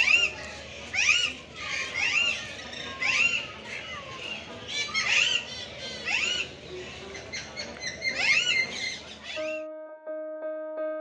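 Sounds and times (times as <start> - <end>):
birds squawking: 0.0 - 9.6.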